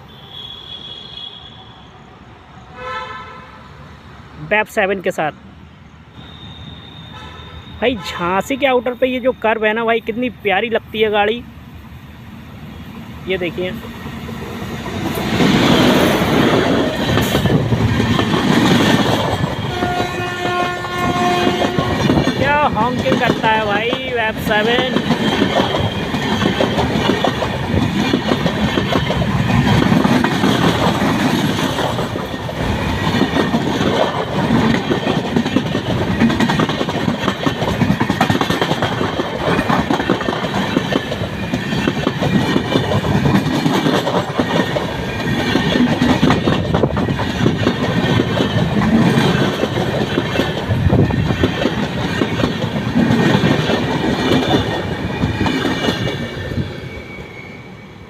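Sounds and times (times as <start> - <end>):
train rumbling past: 0.0 - 58.0
train wheels clacking on rail joints: 14.2 - 56.7.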